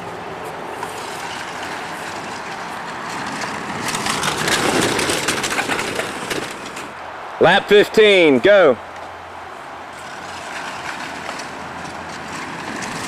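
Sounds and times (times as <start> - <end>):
model cars rolling rumble: 0.0 - 7.0, 9.9 - 13.0
rapid clicking and rattling: 0.9 - 7.0.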